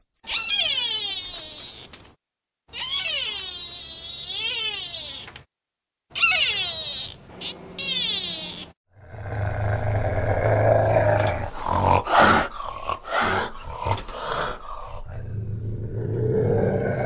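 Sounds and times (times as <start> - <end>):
animal crying: 0.2 - 1.9, 2.7 - 5.3, 6.1 - 8.8
animal growling: 8.9 - 17.0.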